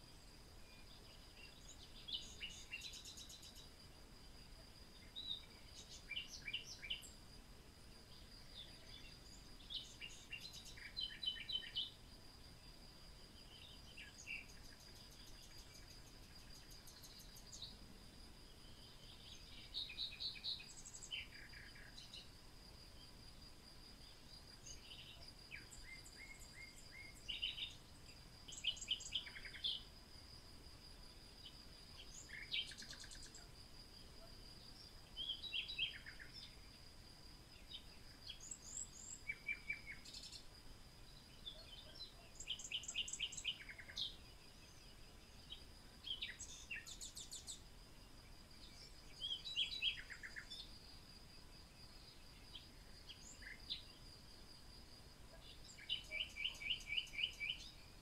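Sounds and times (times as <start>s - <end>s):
birds chirping and singing: 0.8s - 3.7s, 8.1s - 12.0s, 28.5s - 29.8s, 41.4s - 44.9s, 55.4s - 57.7s.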